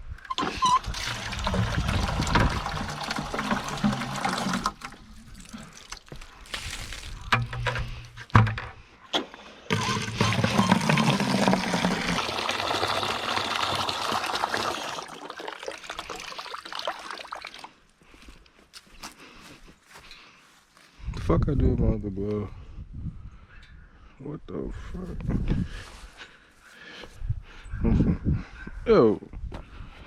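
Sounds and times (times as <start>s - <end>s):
water running: 0.4s - 6.8s, 9.7s - 17.7s.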